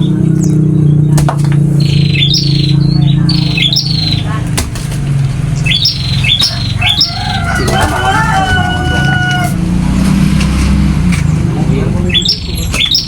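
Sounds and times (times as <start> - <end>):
finch buzzy calls: 0.0 - 4.4, 5.4 - 8.1
loud low hum: 0.0 - 12.7.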